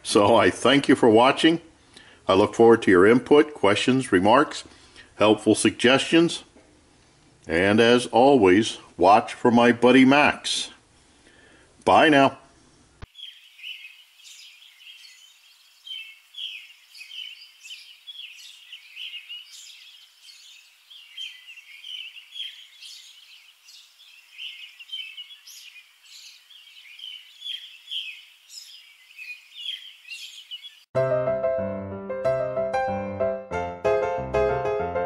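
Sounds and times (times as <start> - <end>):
small birds chirping: 13.0 - 30.9
piano music: 31.0 - 35.0.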